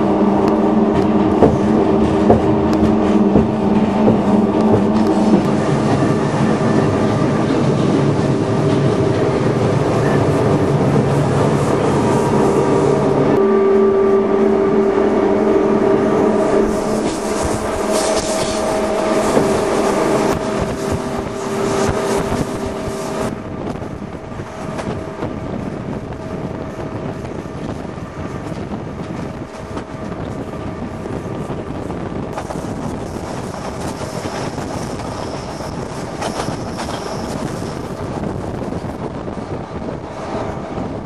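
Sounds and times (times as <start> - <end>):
thin high whine: 0.0 - 23.4
steady hum of tones: 0.0 - 41.0
train running at speed: 0.0 - 41.0
wind buffeting microphone: 0.0 - 41.0.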